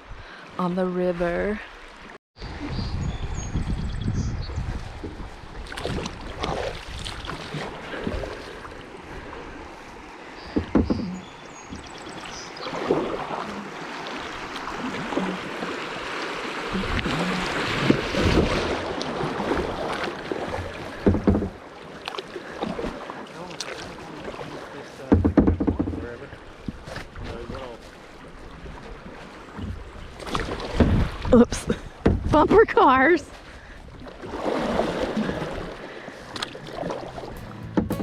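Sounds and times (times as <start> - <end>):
rushing water: 0.0 - 2.9, 3.5 - 38.0
paddle splashing: 4.6 - 38.0
sharp knocks: 10.5 - 11.8, 21.0 - 21.6, 25.1 - 26.1, 37.4 - 38.0.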